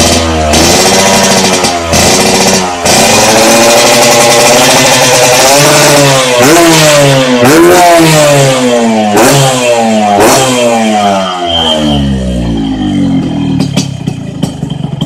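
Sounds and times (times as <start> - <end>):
exhaust cracks: 0.0 - 15.0
motorcycle engine revving: 0.0 - 15.0.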